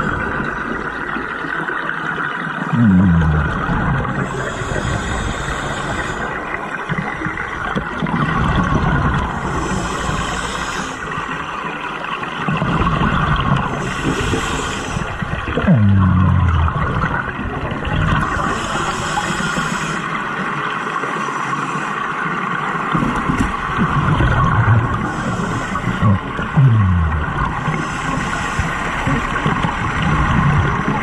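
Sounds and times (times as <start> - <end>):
exhaled bubbles underwater: 0.0 - 21.0, 22.6 - 31.0
low falling tones: 2.7 - 4.3, 15.7 - 17.3, 24.4 - 25.1, 25.9 - 27.7.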